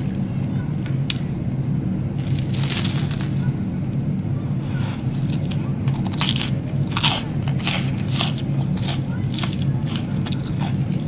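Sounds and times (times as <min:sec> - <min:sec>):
steady low hum: 0:00.0 - 0:11.0
crispy crust crunching: 0:02.2 - 0:03.6, 0:04.6 - 0:11.0.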